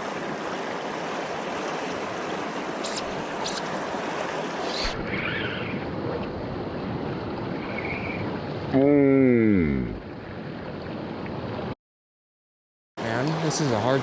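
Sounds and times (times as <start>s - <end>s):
river water rushing: 0.0s - 5.8s, 13.0s - 14.0s.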